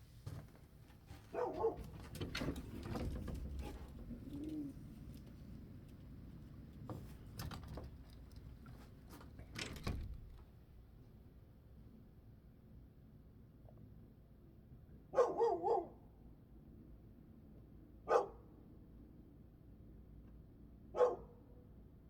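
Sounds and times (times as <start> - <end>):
bird cooing: 4.1 - 4.8.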